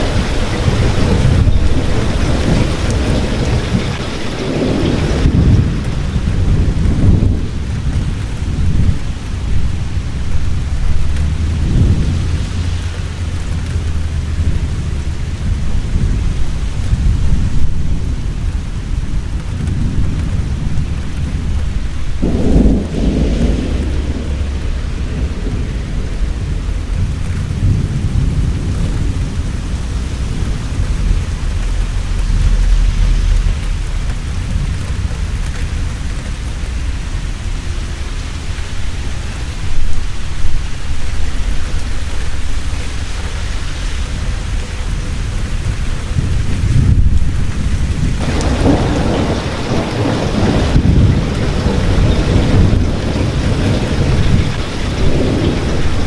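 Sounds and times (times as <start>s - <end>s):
heavy rain: 0.0s - 56.0s
thunder clap: 0.0s - 56.0s
thunder rumbling: 0.0s - 56.0s.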